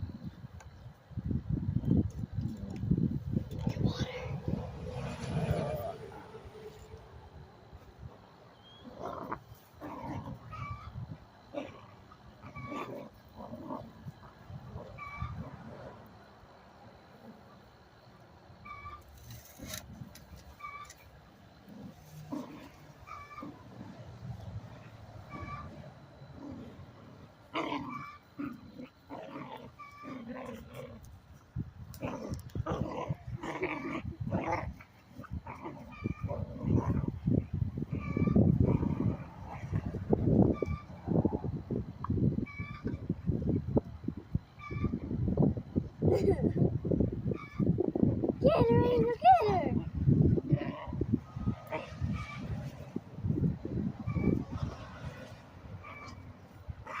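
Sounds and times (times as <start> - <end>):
dogs growling: 8.7 - 16.2, 21.6 - 31.2, 31.9 - 40.3, 50.4 - 52.7, 53.4 - 57.0
dog yelps: 25.3 - 25.8.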